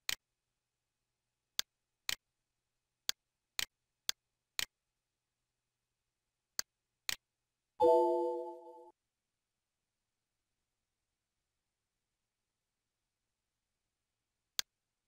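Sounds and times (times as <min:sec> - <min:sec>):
computer mouse clicks: 0:00.0 - 0:00.2
short electronic chime: 0:07.8 - 0:08.9.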